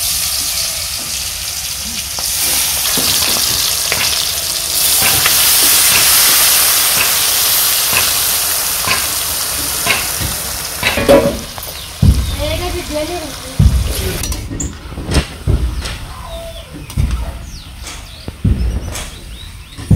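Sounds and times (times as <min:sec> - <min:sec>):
chicken sizzling in hot oil: 0:00.0 - 0:14.4.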